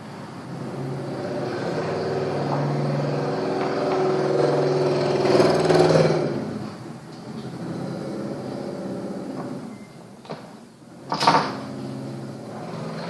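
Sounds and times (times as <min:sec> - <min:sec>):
vehicle engine passing by: 0:00.0 - 0:06.8.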